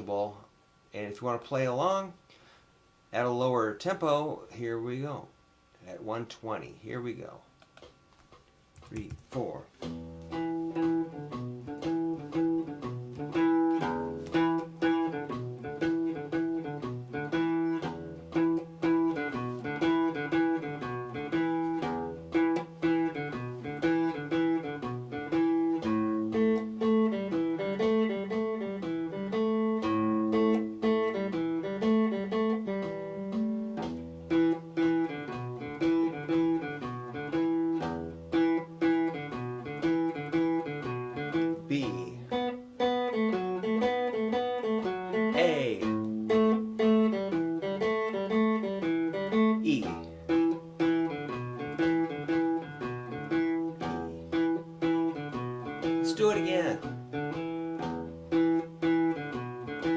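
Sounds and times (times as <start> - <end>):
guitar playing blues riff: 9.3 - 59.9.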